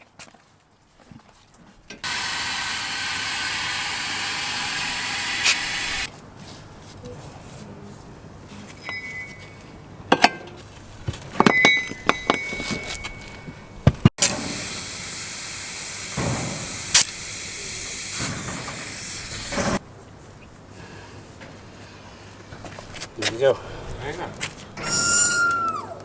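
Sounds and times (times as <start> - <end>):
compressed air hissing: 2.0 - 6.1, 14.2 - 19.8
metal tools clinking on wheel: 8.8 - 13.9.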